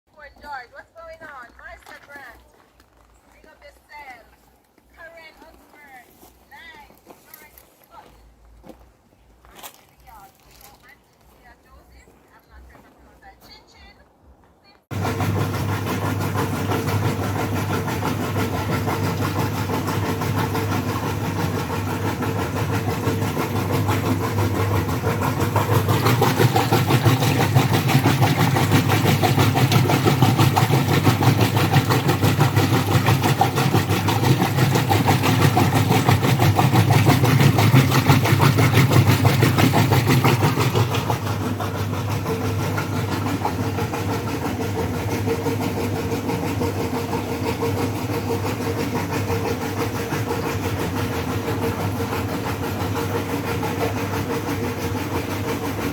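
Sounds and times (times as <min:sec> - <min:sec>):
motor humming: 0:14.9 - 0:55.9.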